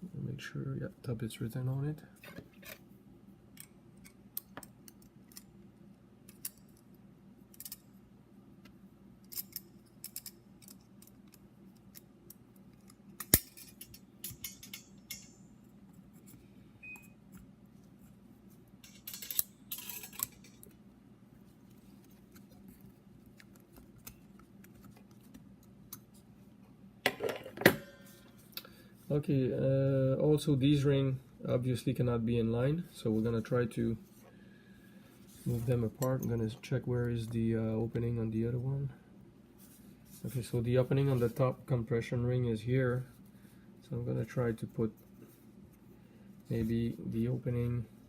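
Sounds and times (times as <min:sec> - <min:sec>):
faint steady hum: 0:00.0 - 0:48.0
metallic clicks and scrapes: 0:12.7 - 0:15.4, 0:18.8 - 0:20.8.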